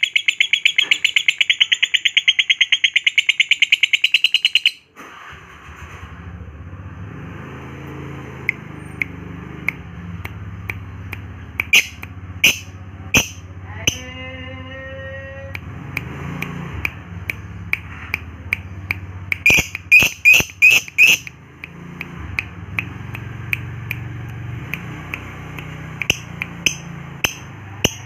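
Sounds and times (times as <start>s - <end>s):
lovebird chirping: 0.0s - 4.8s, 19.4s - 21.3s.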